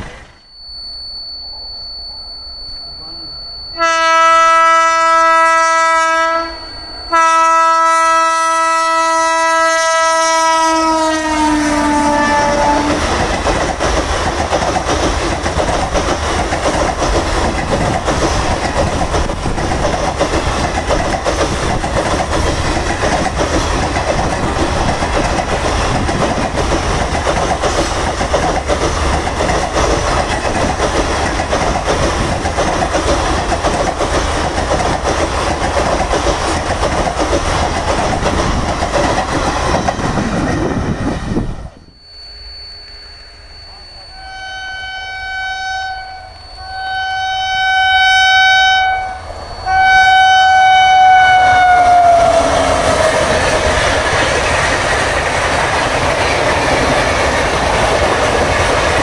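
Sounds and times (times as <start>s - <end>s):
locomotive horn blasts: 3.8s - 13.1s, 44.1s - 52.5s
train rumbling over rail joints: 4.4s - 41.8s, 49.1s - 59.0s.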